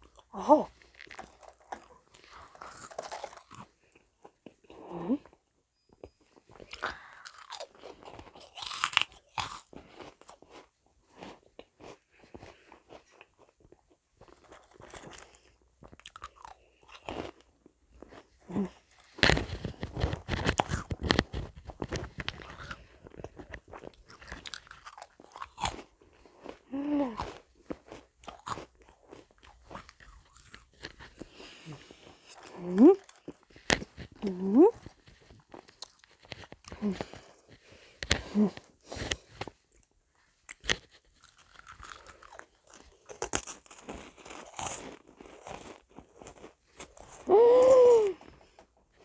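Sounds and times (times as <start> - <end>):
chewing crisp cookies: 0.0 - 49.0.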